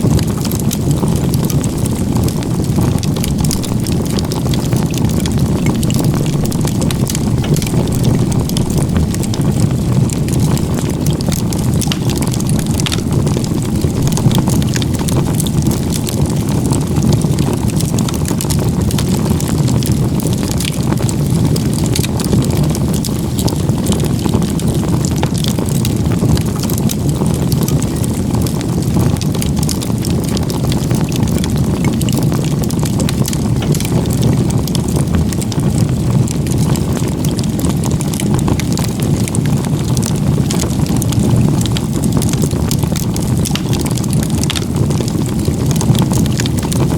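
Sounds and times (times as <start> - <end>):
firewood crackling and popping: 0.0 - 46.9
wood fire roaring: 0.0 - 46.9.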